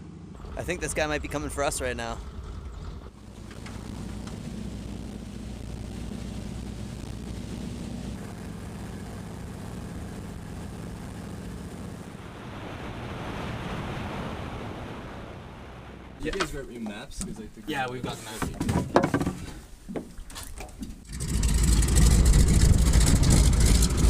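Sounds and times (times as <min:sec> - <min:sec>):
propeller engine drone: 0:00.0 - 0:16.2, 0:21.1 - 0:24.0
rising rush of noise: 0:03.1 - 0:16.2.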